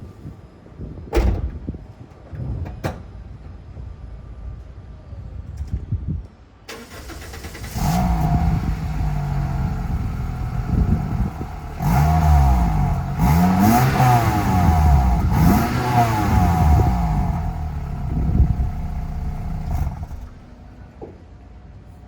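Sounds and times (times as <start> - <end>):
car engine revving: 7.6 - 20.4.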